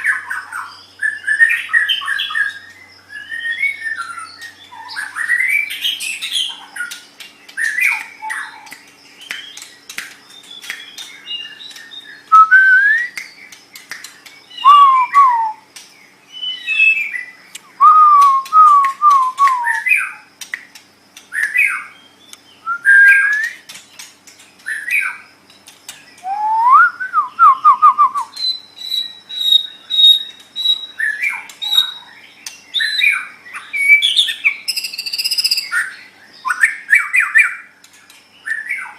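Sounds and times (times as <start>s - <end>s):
bird singing whistled song: 0.0s - 20.3s, 21.3s - 23.7s, 24.6s - 25.3s, 25.9s - 38.9s
bird clicking notes: 6.9s - 12.0s, 13.0s - 15.9s, 17.5s - 21.6s.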